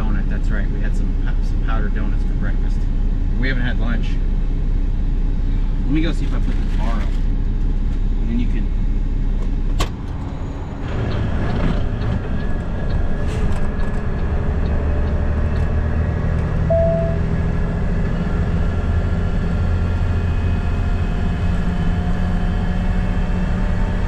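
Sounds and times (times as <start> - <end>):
diesel engine running: 0.0 - 24.0
road noise: 6.6 - 24.0
short beep: 16.7 - 17.4.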